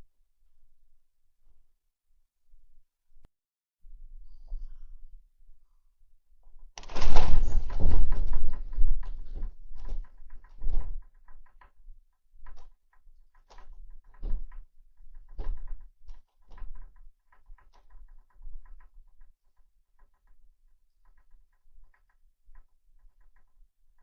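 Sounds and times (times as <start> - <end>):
house rattling in an earthquake: 6.8 - 11.8
knocks and short rattles: 13.3 - 19.3.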